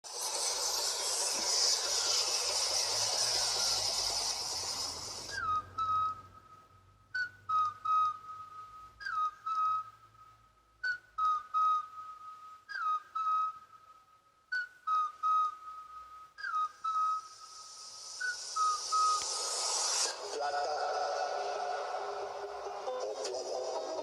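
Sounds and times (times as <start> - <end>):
hiss: 0.0 - 5.4, 17.3 - 22.6
short whistled figure: 0.1 - 20.3.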